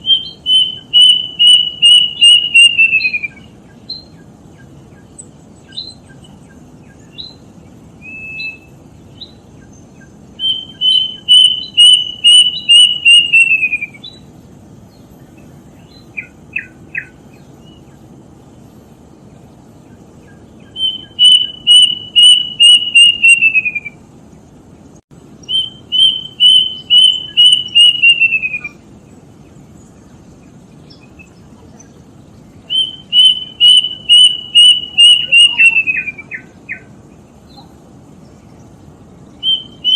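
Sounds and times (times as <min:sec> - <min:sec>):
cuckoo whistled calls: 0:00.0 - 0:14.3, 0:15.8 - 0:18.0, 0:20.2 - 0:24.0, 0:25.4 - 0:28.9, 0:32.6 - 0:37.8, 0:39.2 - 0:39.9
steady low hiss: 0:00.0 - 0:39.9.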